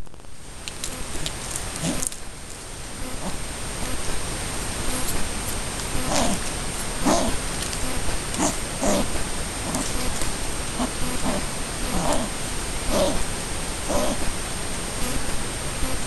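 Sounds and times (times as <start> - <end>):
rain hissing on camera: 0.0 - 15.6
kiwi birds grunting: 0.8 - 4.1, 4.8 - 14.3.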